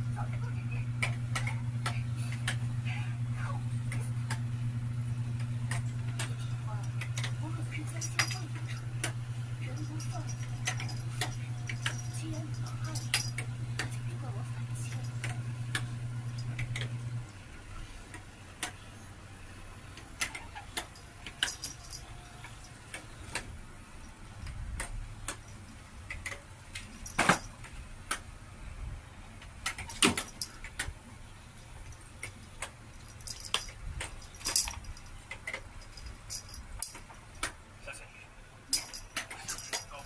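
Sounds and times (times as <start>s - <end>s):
faint low hum: 0.0s - 40.0s
metallic jingling: 5.1s - 17.2s, 20.2s - 23.3s, 26.6s - 27.6s, 29.9s - 30.7s, 31.6s - 37.5s, 38.7s - 40.0s.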